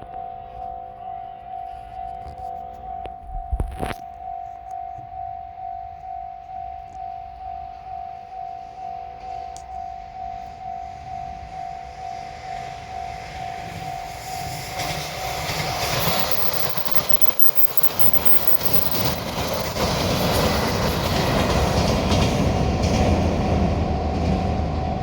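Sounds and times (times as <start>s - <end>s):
train wheels and rail clatter: 6.8s - 25.0s
electronic level crossing bell: 15.8s - 19.8s.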